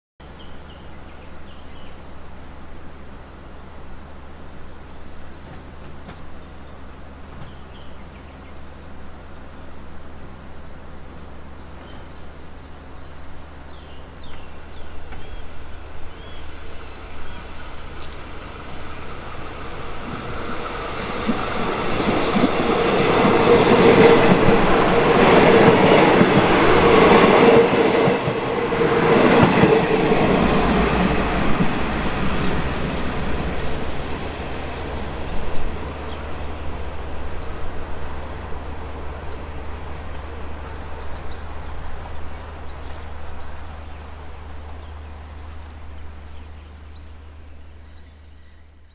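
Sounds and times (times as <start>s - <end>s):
diesel railcar passing: 0.2s - 48.9s
high wheel squeal: 23.7s - 40.7s.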